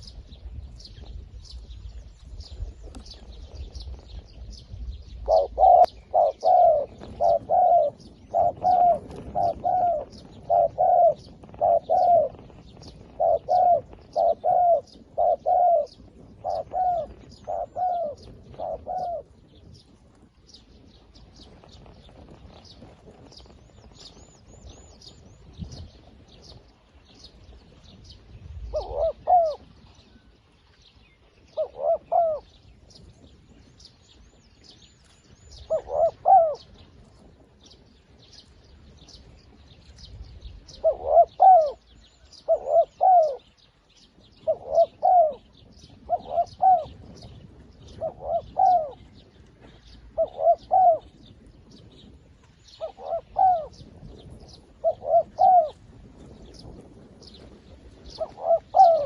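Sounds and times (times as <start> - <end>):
small birds chirping: 0.0 - 59.0
dove cooing: 5.1 - 19.4, 28.6 - 30.1, 31.5 - 32.6, 35.5 - 37.3, 40.6 - 52.1, 52.8 - 56.7, 58.0 - 59.0.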